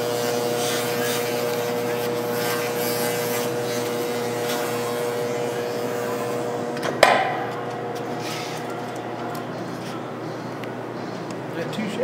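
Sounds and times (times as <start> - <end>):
welder humming: 0.0 - 11.4.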